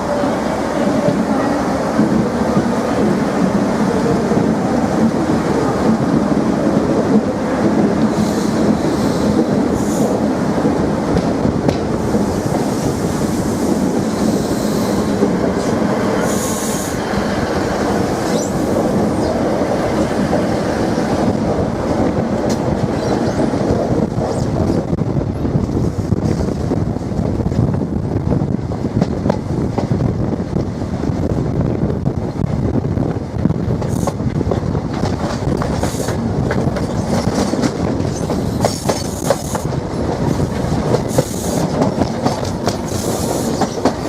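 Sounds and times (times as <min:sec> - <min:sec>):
train wheels clattering on rails: 0:00.8 - 0:25.0, 0:28.8 - 0:31.4, 0:33.4 - 0:44.0
train wheel squeals: 0:18.2 - 0:19.4, 0:22.9 - 0:23.6.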